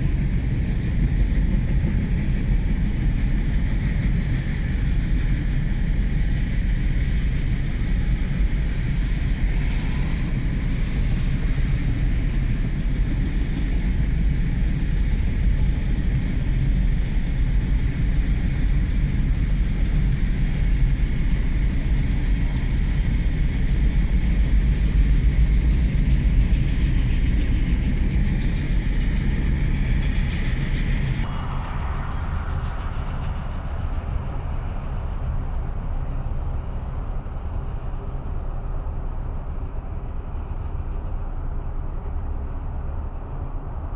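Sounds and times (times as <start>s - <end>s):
freight train wheels rumbling: 0.0s - 43.9s.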